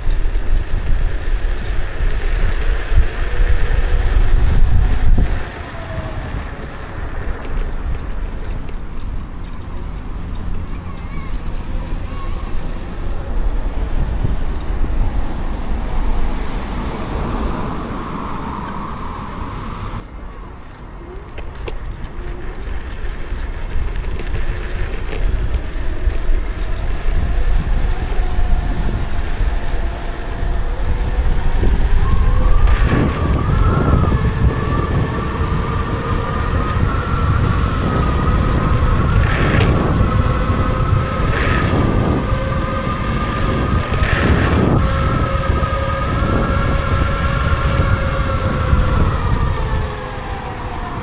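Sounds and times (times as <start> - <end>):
road noise: 0.0 - 51.0
wind noise on microphone: 0.0 - 51.0
high electric motor whine: 24.0 - 51.0.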